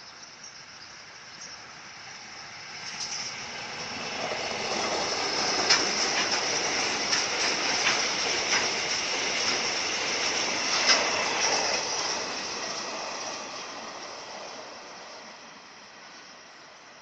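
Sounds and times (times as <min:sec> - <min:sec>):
freight train wheels rushing on rail: 0:00.0 - 0:17.0
wagons clacking over rail joints: 0:02.8 - 0:13.6.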